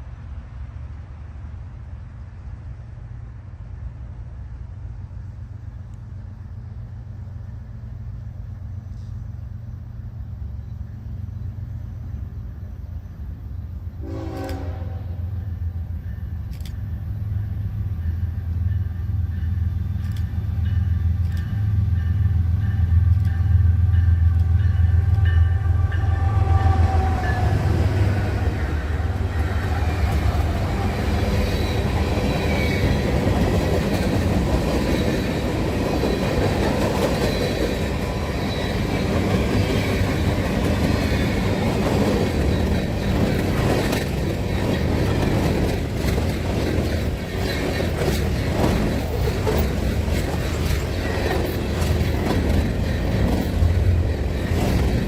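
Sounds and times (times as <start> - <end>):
diesel locomotive engine: 0.0 - 55.0
railroad cars rolling by: 0.0 - 55.0
wheels clicking over rail joints: 29.2 - 55.0.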